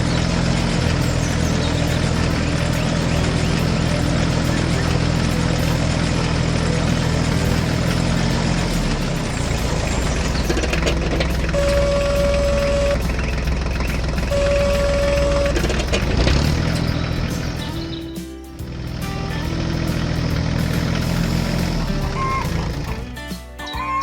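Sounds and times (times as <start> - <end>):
tractor engine running: 0.0 - 23.6
long steady tones: 10.6 - 16.2.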